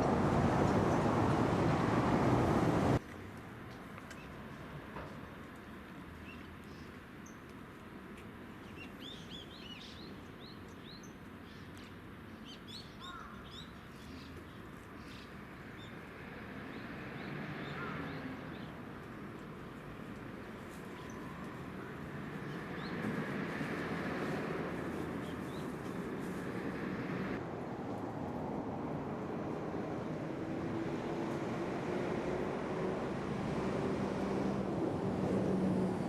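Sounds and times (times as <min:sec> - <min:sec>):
small birds chirping: 0:19.5 - 0:23.2, 0:24.8 - 0:26.4.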